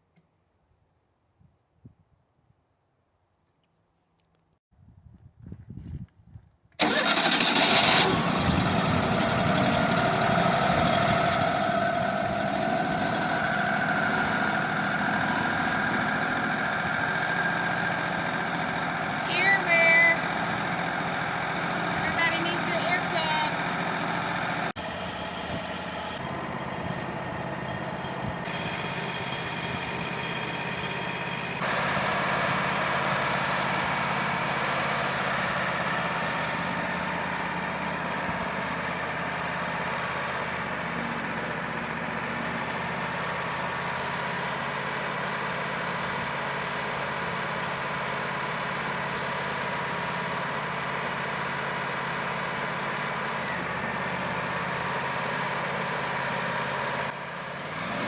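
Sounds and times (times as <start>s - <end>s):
sawmill engine under load: 6.8s - 58.0s
band blade cutting log: 12.8s - 16.0s.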